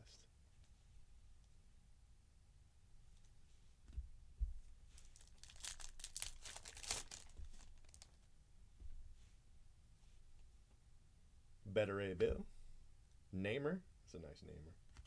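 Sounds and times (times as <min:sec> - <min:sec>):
wrapper crinkling and tearing: 0:04.9 - 0:08.2.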